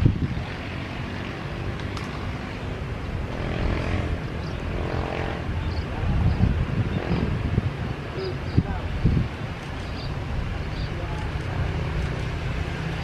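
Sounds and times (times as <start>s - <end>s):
airliner engines rumbling: 0.0s - 13.0s.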